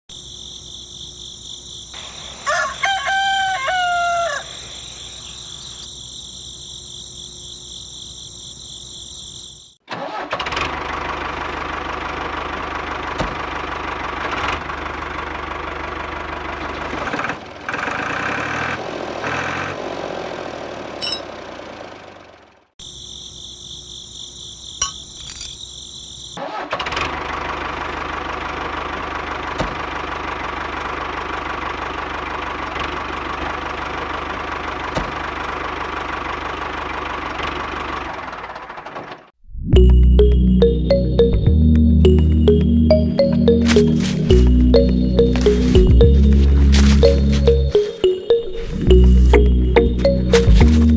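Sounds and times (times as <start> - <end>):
rooster crowing: 2.4 - 5.0.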